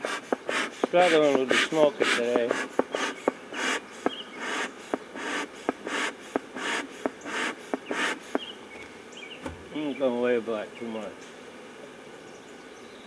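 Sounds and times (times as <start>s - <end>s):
bellows puffing hiss of air: 0.0s - 9.8s.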